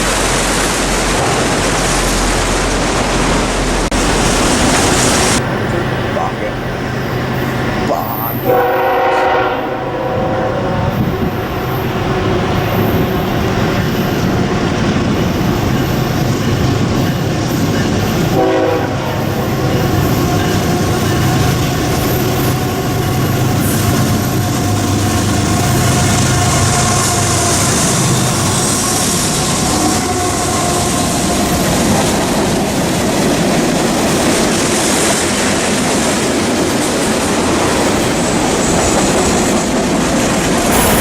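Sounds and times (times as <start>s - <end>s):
diesel locomotive engine: 0.0s - 41.0s
train wheels on rail: 0.0s - 41.0s
locomotive air horn: 8.4s - 11.0s, 18.3s - 19.9s, 23.6s - 31.6s.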